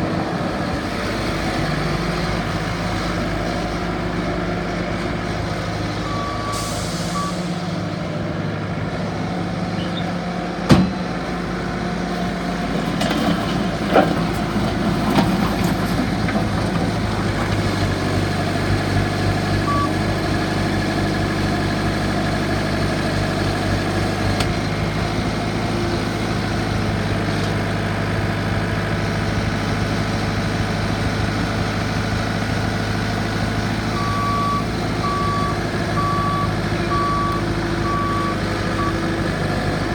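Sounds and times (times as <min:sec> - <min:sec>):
diesel engine running: 0:00.0 - 0:39.9
backup alarm beeping: 0:34.0 - 0:39.0.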